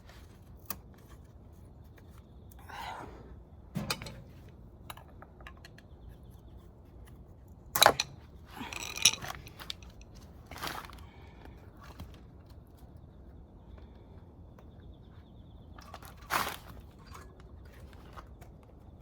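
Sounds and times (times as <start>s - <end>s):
scraping rattle: 3.8s - 4.5s, 7.9s - 10.2s
metal parts clinking and knocking: 3.8s - 5.8s, 7.8s - 10.3s.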